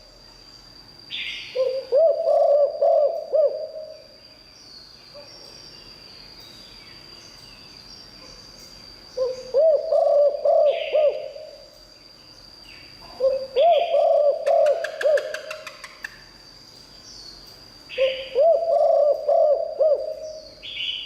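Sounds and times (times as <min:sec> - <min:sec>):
dove cooing: 0:01.6 - 0:04.0, 0:09.2 - 0:11.6, 0:13.1 - 0:15.8, 0:18.0 - 0:20.5.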